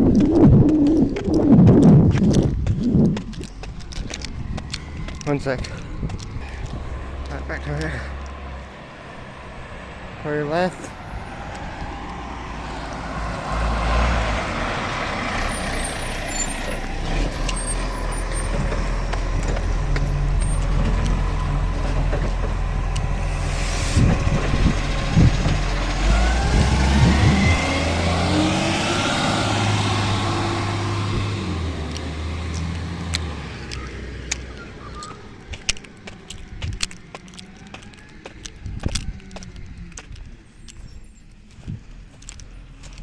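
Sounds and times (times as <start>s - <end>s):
knocks and rising whines: 0.0s - 10.2s, 10.9s - 40.4s
garbage truck engine running: 14.6s - 36.4s.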